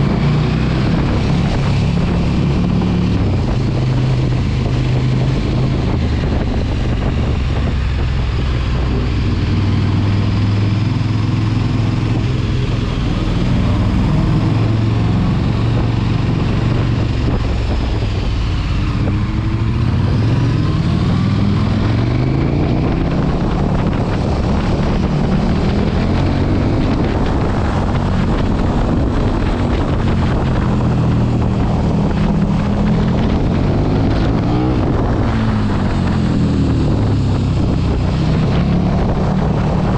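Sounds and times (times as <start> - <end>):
motorcycle engine revving: 0.0 - 39.9
wind noise on microphone: 0.0 - 39.9.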